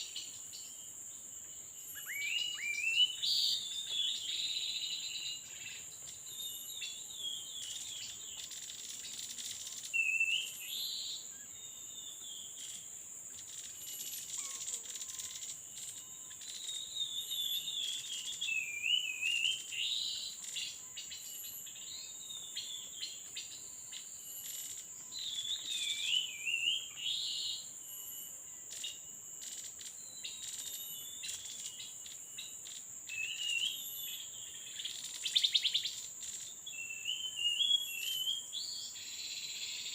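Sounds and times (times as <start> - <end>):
forest insects droning: 0.0 - 39.9
warbling bird calls: 12.1 - 21.7.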